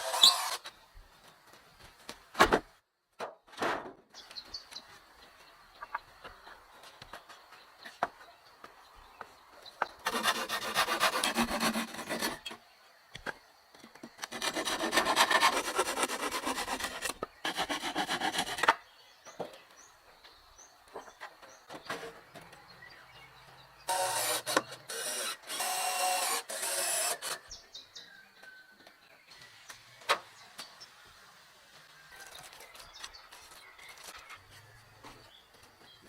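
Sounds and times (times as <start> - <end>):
hand tool rasping across wood: 10.0 - 12.6, 14.2 - 18.7.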